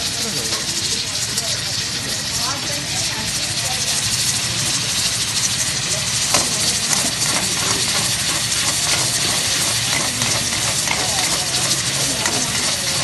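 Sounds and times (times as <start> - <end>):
chicken frying in hot oil: 0.0 - 13.0
metal spatula scraping wok: 5.2 - 13.0.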